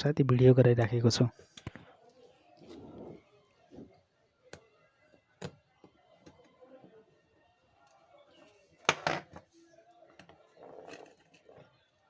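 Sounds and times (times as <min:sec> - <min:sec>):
faint background voices: 0:01.3 - 0:12.0.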